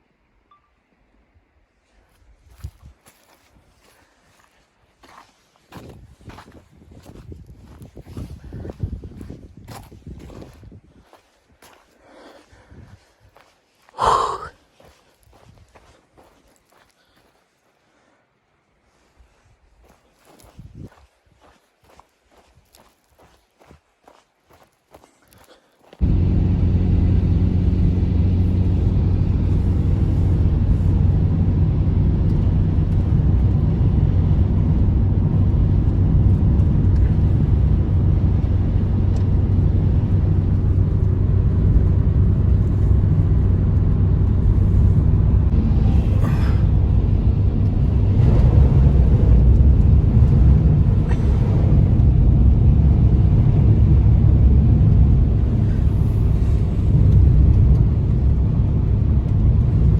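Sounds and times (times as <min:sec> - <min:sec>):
low rumble: 0:26.0 - 0:59.9.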